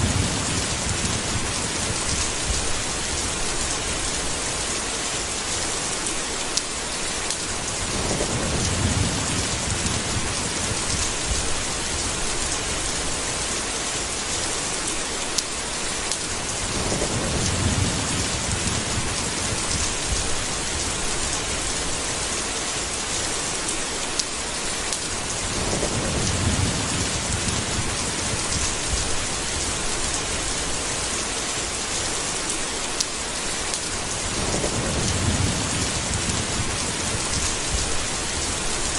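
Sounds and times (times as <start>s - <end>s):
low rolls of thunder: 0.0s - 4.5s, 7.6s - 13.4s, 16.4s - 22.0s, 25.2s - 31.0s, 34.0s - 38.9s
heavy rain: 0.0s - 38.9s
sharp raindrop ticks: 6.5s - 12.6s, 15.3s - 21.0s, 24.1s - 29.3s, 32.9s - 38.9s.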